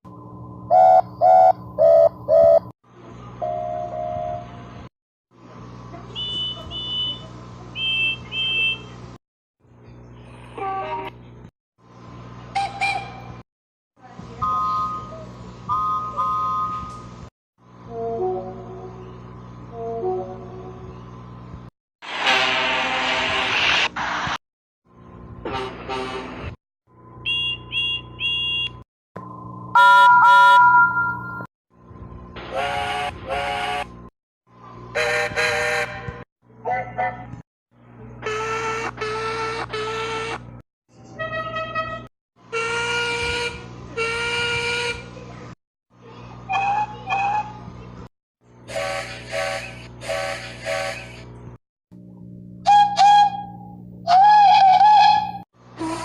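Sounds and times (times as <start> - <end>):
steam locomotive whistle toots: 32.5 - 33.9, 48.7 - 51.2, 52.6 - 56.0.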